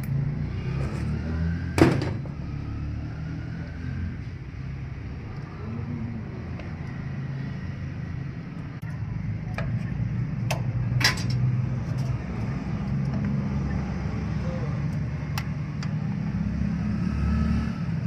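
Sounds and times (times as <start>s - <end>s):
low engine rumble: 4.0s - 16.8s.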